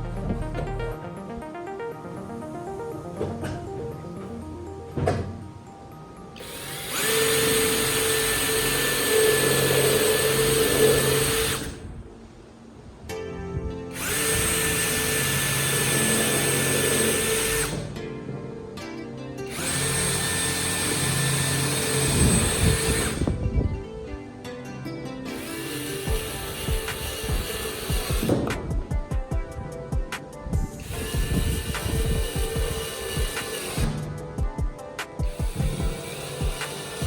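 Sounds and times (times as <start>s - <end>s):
background music: 0.0s - 37.0s
router motor whining: 6.4s - 12.0s, 13.9s - 18.0s, 19.4s - 23.8s, 25.3s - 28.8s, 30.8s - 34.3s, 35.1s - 37.0s.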